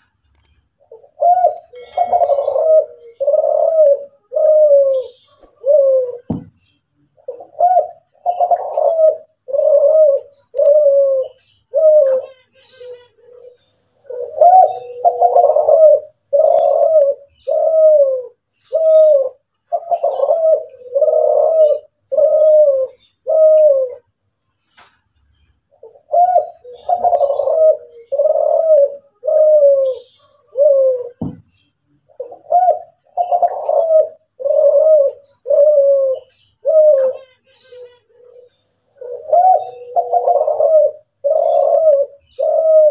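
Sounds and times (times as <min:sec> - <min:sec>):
faint high chirping: 0:00.0 - 0:42.9
dove cooing: 0:00.8 - 0:24.1, 0:25.7 - 0:42.9.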